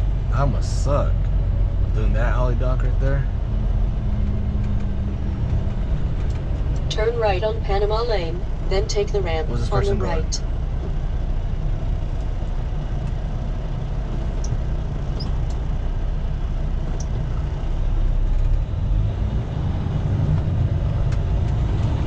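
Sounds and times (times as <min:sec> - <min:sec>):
diesel truck engine rumbling: 0:00.0 - 0:22.0.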